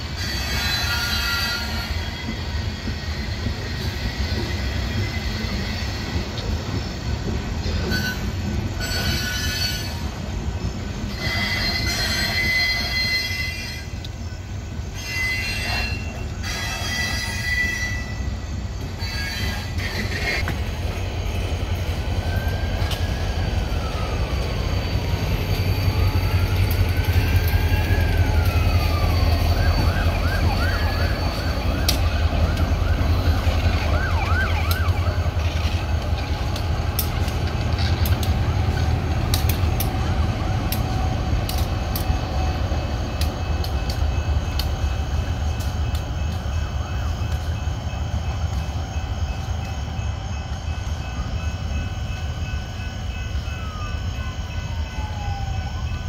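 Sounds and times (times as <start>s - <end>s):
freight train rumbling past: 0.0s - 56.0s
train clicks: 0.0s - 56.0s
siren wailing and yelping: 27.6s - 35.4s.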